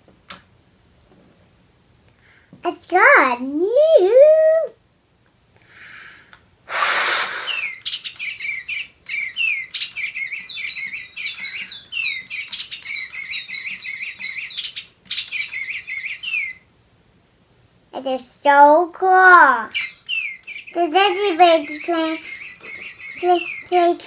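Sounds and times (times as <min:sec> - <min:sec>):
loud breathy blast: 0:05.7 - 0:07.7
electronic birdsong chirps: 0:07.4 - 0:16.7, 0:19.6 - 0:24.0.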